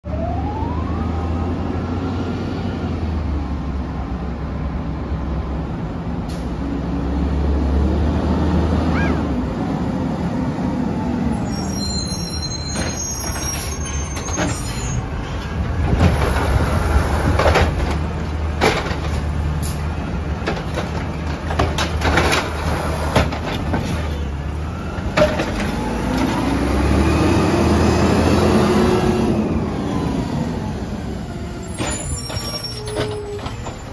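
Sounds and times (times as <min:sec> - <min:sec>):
diesel truck engine revving: 0:06.3 - 0:11.3, 0:24.6 - 0:31.6.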